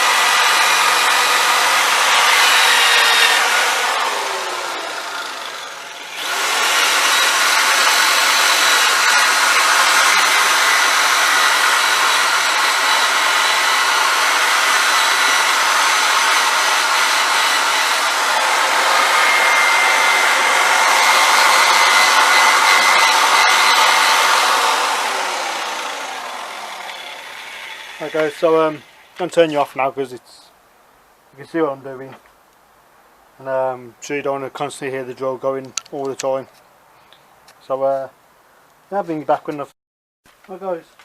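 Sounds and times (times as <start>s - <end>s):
electric drill running: 0.0s - 29.2s.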